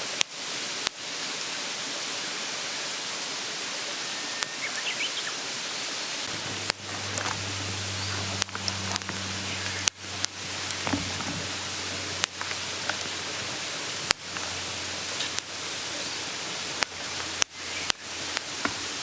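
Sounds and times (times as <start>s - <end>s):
stream babbling: 0.5s - 19.0s
sharp pops: 6.2s - 19.0s.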